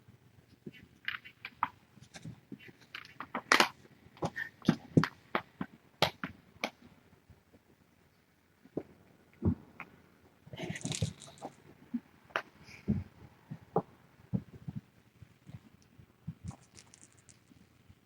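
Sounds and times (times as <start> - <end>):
handling clicks and rustles: 10.6 - 11.7, 14.4 - 18.0.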